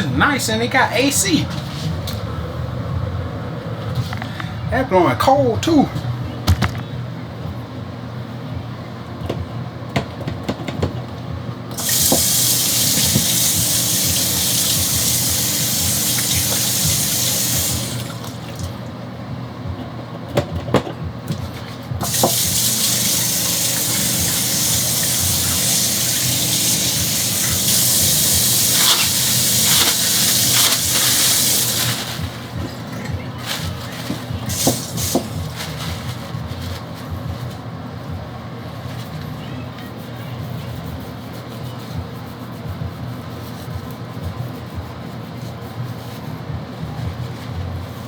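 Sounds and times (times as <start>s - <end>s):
faucet running: 11.7s - 18.8s, 22.0s - 32.7s, 34.5s - 35.6s.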